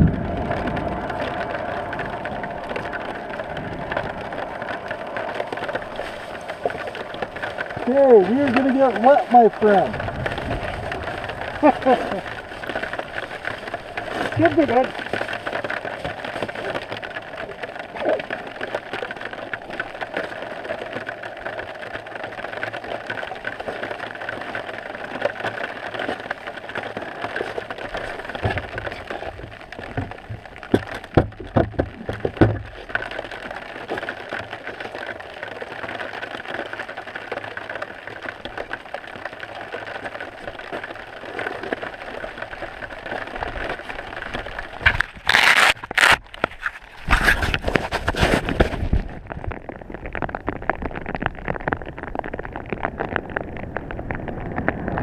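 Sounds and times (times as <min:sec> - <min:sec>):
rumbles and knocks: 0:00.0 - 0:21.0, 0:25.9 - 0:34.6
rain pattering on camera: 0:00.0 - 0:55.0.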